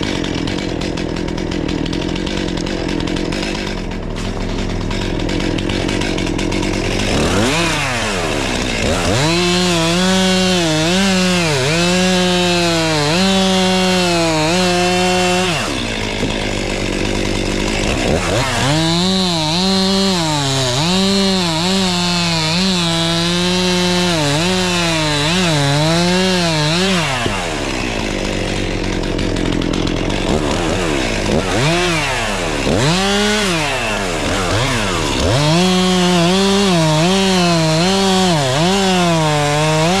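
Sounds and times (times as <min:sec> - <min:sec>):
chainsaw cutting wood: 0:00.0 - 0:40.0.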